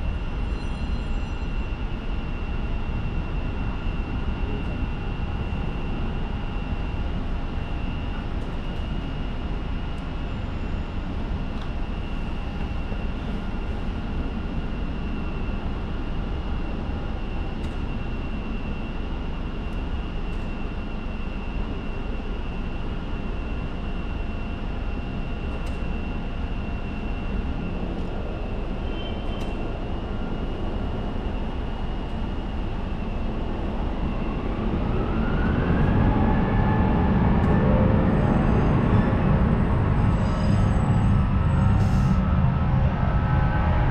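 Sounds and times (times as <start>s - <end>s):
jet engines whining: 1.4s - 43.9s.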